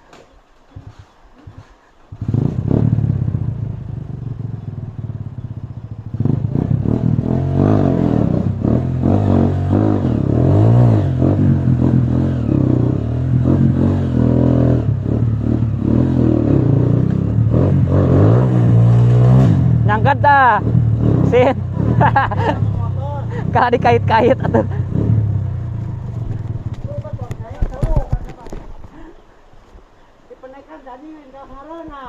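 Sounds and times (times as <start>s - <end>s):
motorcycle engine revving hard: 2.1s - 28.0s.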